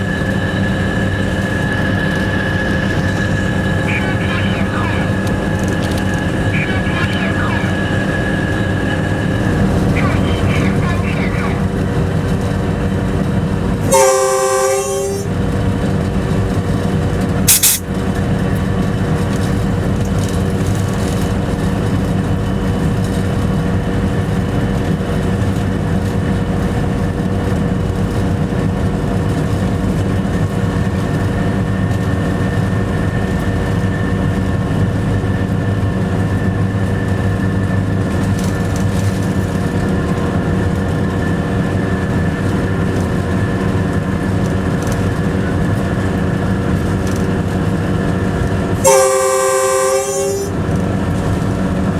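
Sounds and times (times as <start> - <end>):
train horn: 0.0 - 11.8, 13.8 - 15.6, 17.5 - 17.8, 48.8 - 50.8
locomotive cab running noise: 0.0 - 51.9
sharp click: 17.5 - 17.8.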